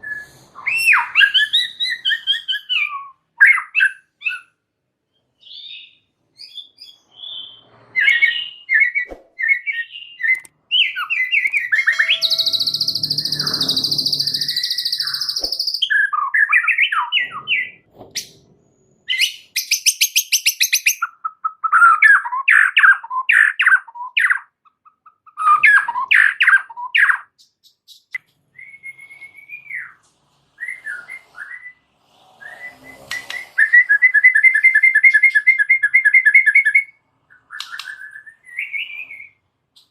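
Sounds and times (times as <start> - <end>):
songbird whistling and trilling: 0.0 - 4.6, 5.4 - 17.9, 19.1 - 30.0, 32.4 - 39.9.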